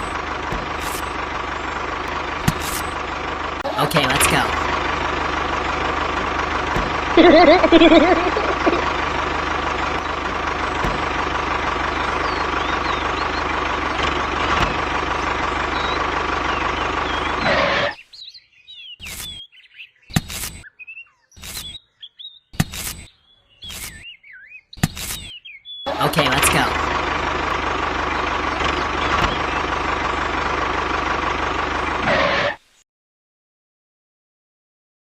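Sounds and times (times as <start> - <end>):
small engine running: 0.0 - 18.0, 19.0 - 19.4, 20.2 - 20.6, 21.4 - 21.8, 23.7 - 24.0, 25.9 - 32.6
birds chirping: 0.0 - 32.1.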